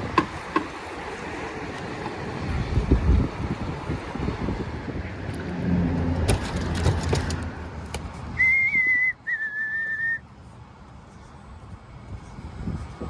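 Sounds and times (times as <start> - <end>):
handling rumble: 0.0 - 8.9
wind: 0.0 - 13.0
person whistling: 8.4 - 10.2.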